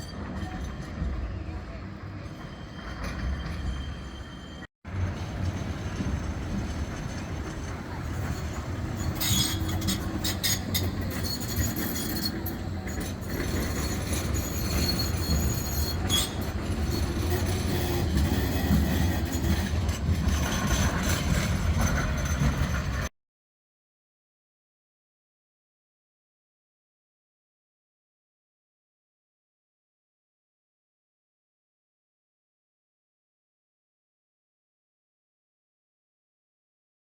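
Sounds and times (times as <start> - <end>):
tram low rumble: 0.0 - 23.1
wheel on rail clicks and squeals: 0.0 - 23.1.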